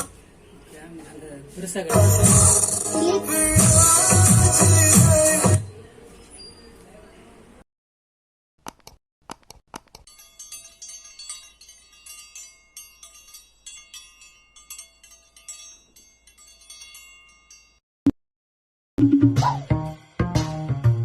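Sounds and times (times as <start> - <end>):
ringing chime-like notes: 10.1 - 17.8.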